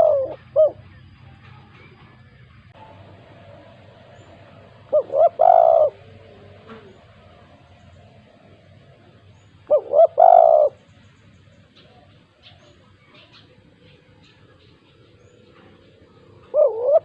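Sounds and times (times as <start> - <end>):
dove cooing: 0.0 - 0.9, 3.7 - 10.8, 15.5 - 17.0
small birds chirping: 3.6 - 17.0.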